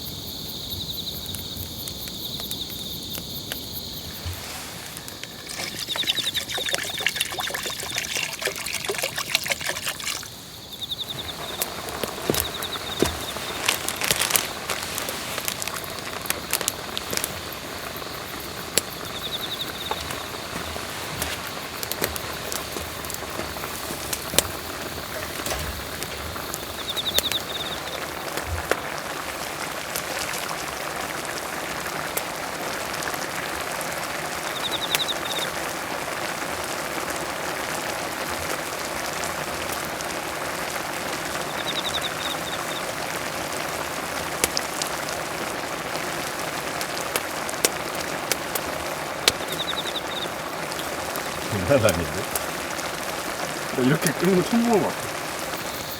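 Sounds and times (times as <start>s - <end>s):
hot pot boiling and bubbling: 0.0s - 55.9s
bird trilling: 5.7s - 6.7s.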